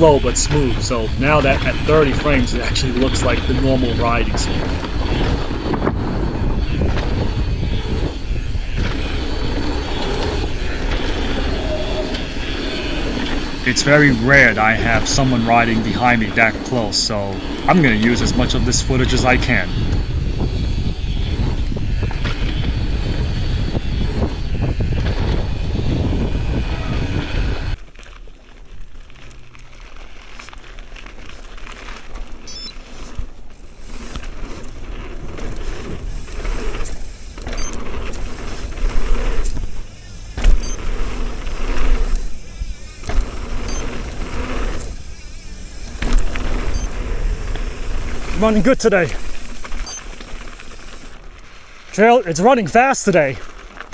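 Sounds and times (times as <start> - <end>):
bike rattling and knocking: 0.0 - 19.7, 27.8 - 51.2
wind rushing over microphone: 0.0 - 27.8, 31.5 - 53.9
bike tyre noise: 0.0 - 53.9.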